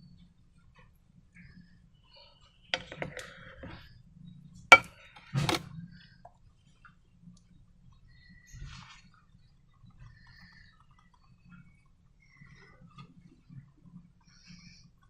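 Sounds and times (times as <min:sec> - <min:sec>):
small clicks and crackles: 0:06.3 - 0:15.0.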